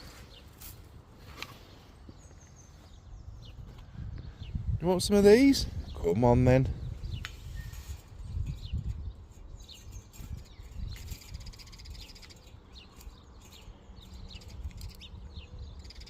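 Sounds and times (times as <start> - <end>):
birds chirping and chattering: 0.0 - 16.0
buzzy rattling bird calls: 6.9 - 16.0.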